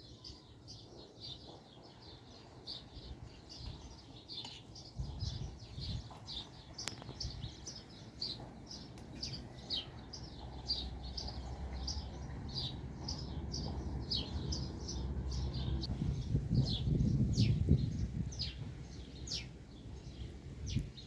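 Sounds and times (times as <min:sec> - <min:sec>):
small birds chirping: 0:00.0 - 0:21.0
steady low rumble: 0:08.4 - 0:21.0.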